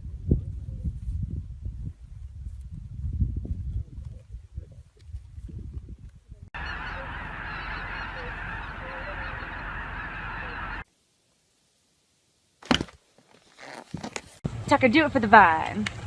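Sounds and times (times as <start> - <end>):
low rumbling: 6.5 - 10.8
many birds calling: 6.6 - 10.8.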